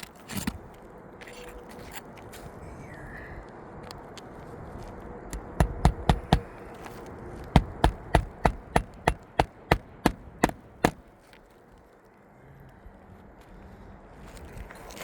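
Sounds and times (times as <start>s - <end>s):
hammer strikes on roof: 5.3s - 6.6s, 7.6s - 11.0s.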